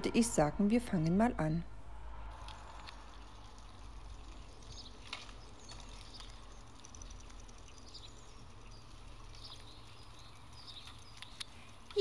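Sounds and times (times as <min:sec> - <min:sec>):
low steady hum: 0:00.0 - 0:12.0
small birds twittering: 0:03.0 - 0:12.0.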